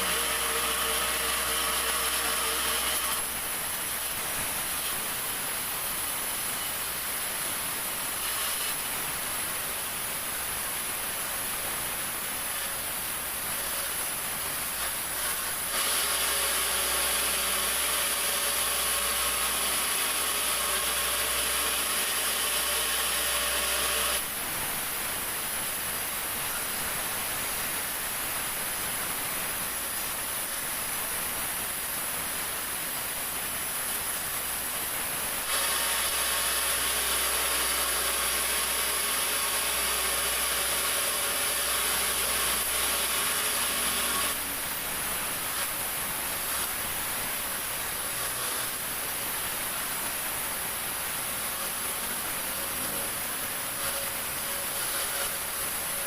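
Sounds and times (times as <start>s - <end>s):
sawmill saw cutting wood: 0.0s - 5.3s, 7.8s - 9.2s, 12.4s - 24.3s, 35.4s - 49.5s, 51.1s - 56.0s.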